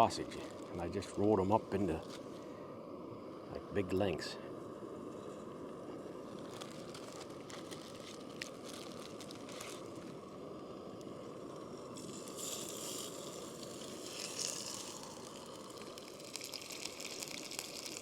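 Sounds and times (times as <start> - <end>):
sausage sizzling in pan: 5.2 - 18.0
stove burner running: 10.1 - 18.0.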